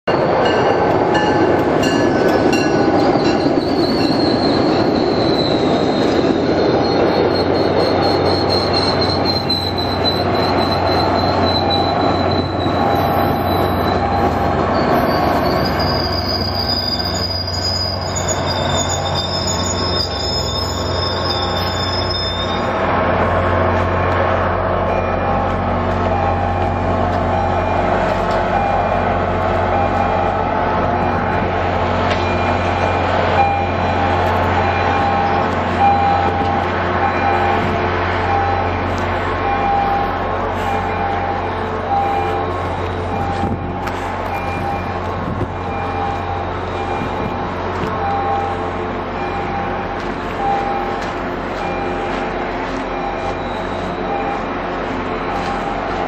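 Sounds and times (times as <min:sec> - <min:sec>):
idling diesel locomotive hum: 0:00.0 - 0:56.0
train wheels squealing: 0:00.1 - 0:22.8, 0:39.4 - 0:45.0, 0:52.9 - 0:54.5.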